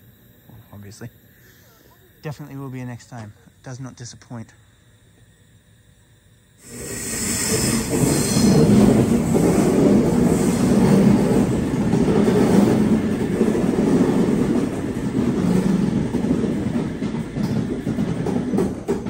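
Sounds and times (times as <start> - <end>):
train wheels rumbling on rail: 6.6 - 19.0.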